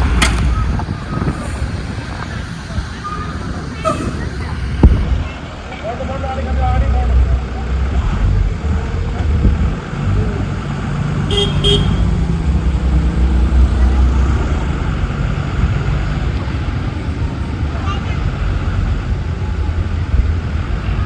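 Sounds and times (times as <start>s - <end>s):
diesel engine low rumble: 0.0s - 21.0s
horn toots: 11.3s - 12.3s.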